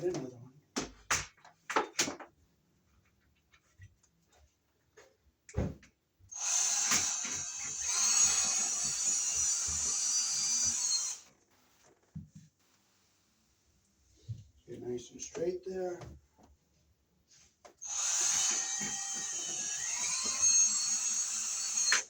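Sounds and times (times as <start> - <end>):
power drill running: 6.3 - 11.3, 17.8 - 22.0.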